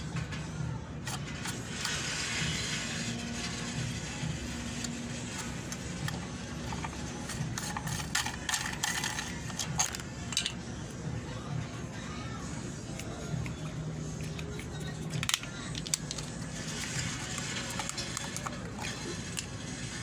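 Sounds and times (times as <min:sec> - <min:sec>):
small mechanical parts clicking: 0:05.7 - 0:10.6, 0:14.3 - 0:19.6.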